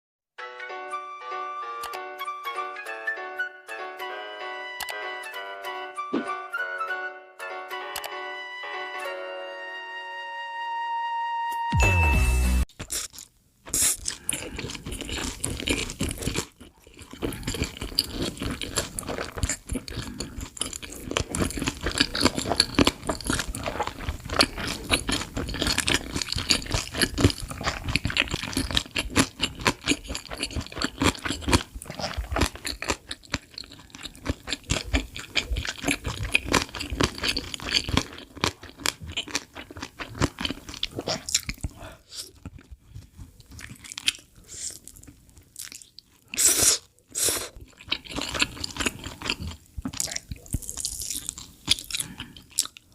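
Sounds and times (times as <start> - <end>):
chewing and crunching food: 12.7 - 52.9.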